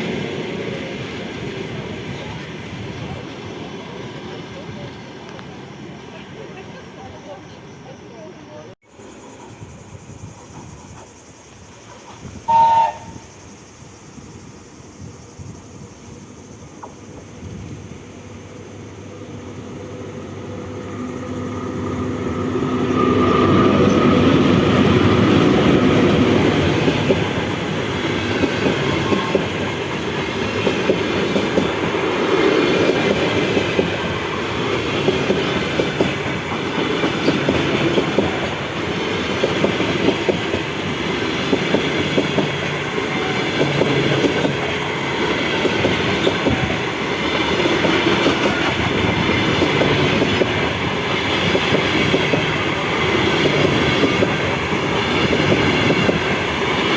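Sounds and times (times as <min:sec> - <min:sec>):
passing train rumble: 0:00.0 - 0:56.9
train wheels clattering over joints: 0:24.0 - 0:56.9.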